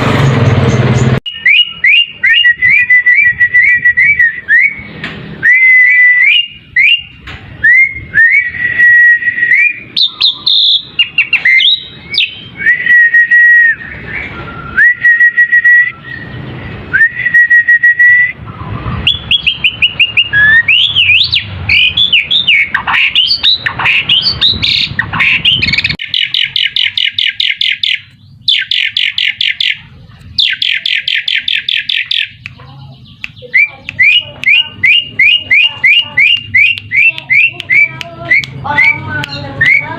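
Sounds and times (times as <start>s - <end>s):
starling whistles: 1.2s - 29.8s, 30.4s - 32.4s, 33.4s - 39.9s
starling rattling chatters: 21.8s - 39.9s.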